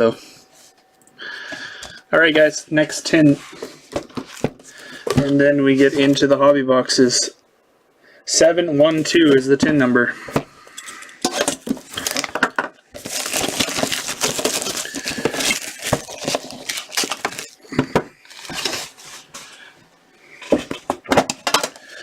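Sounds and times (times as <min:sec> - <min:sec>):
rustling and crinkling: 0:03.3 - 0:06.3, 0:10.9 - 0:19.7
metal tin clinking: 0:10.8 - 0:11.7.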